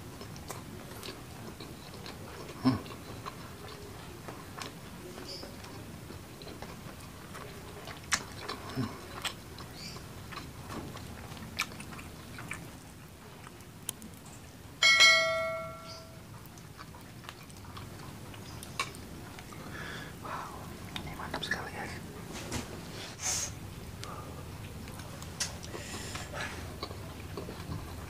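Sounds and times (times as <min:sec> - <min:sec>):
chewing mouth clicks and smacks: 0:00.2 - 0:14.2, 0:16.4 - 0:19.6
bright ringing ding: 0:14.8 - 0:16.2.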